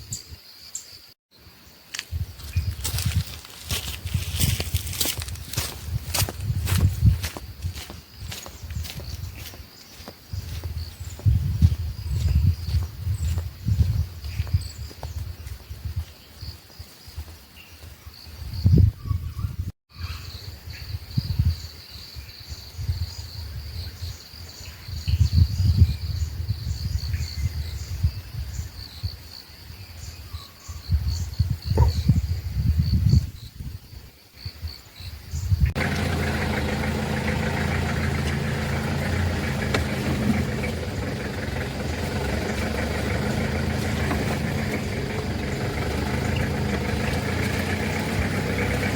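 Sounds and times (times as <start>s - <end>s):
insects chirring: 0.0s - 18.8s
vehicle engine running: 2.8s - 15.0s, 35.8s - 48.9s
low rumbles: 35.7s - 48.9s.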